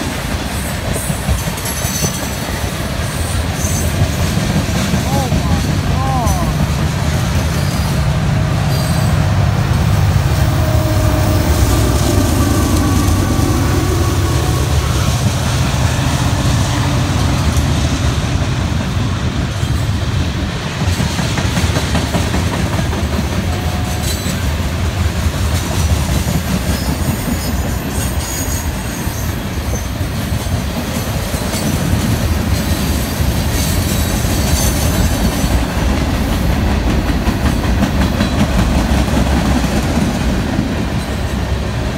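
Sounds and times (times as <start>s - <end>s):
train wheels clattering over rail joints: 0.0s - 8.0s, 17.2s - 41.4s
diesel locomotives rumbling: 0.0s - 41.9s.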